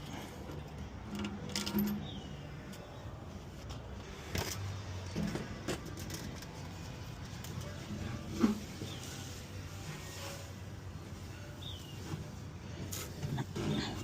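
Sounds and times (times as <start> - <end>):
hand tools and metal fittings clinking: 0.0 - 2.9, 3.7 - 10.5.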